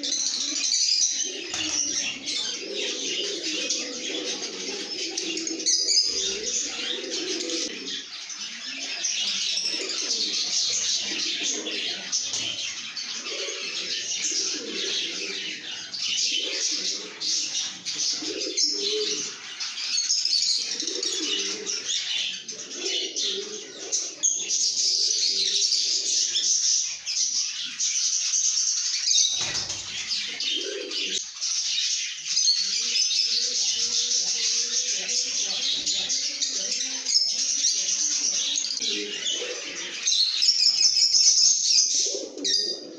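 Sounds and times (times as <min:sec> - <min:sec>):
lovebirds chattering and chirping: 0:00.0 - 0:42.9.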